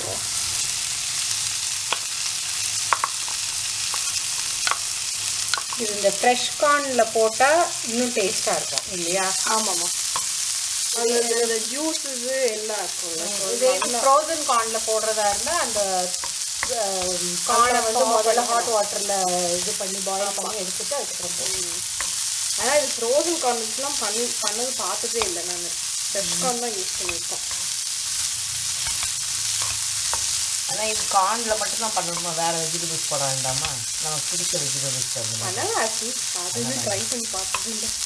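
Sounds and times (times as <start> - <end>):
vegetables sizzling in oil: 0.0 - 38.0.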